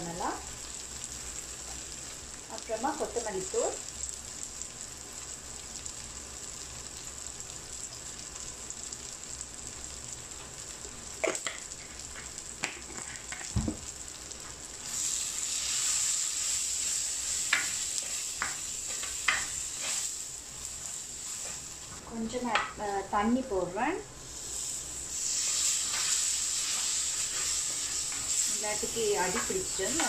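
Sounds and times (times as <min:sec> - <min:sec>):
food frying in oil: 0:00.0 - 0:30.0
wooden spatula stirring: 0:25.4 - 0:30.0.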